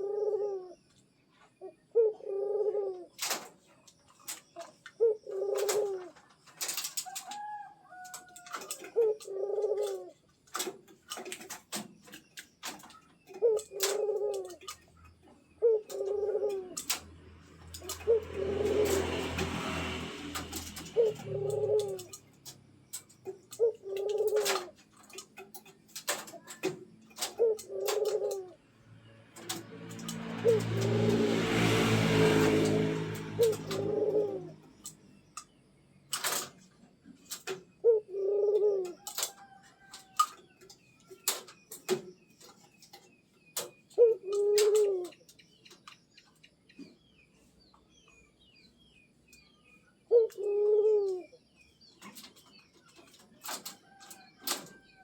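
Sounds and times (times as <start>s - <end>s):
dove cooing: 0.0s - 0.9s, 1.6s - 3.5s, 4.5s - 11.3s, 12.6s - 25.3s, 26.0s - 28.7s, 29.3s - 35.0s, 37.2s - 40.0s, 43.9s - 45.2s, 50.1s - 51.4s
rushing noise with low rumble: 28.9s - 34.7s.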